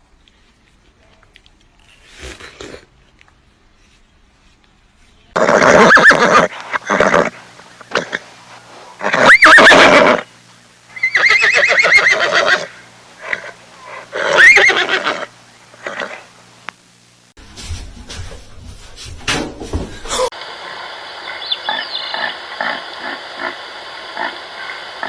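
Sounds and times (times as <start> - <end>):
horse whinnying: 5.4 - 8.3, 9.0 - 10.3, 10.9 - 16.3.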